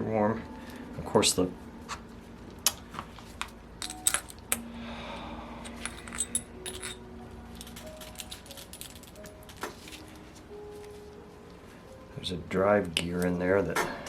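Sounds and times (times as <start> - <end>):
small metal parts clinking: 3.4 - 4.6, 5.6 - 10.0.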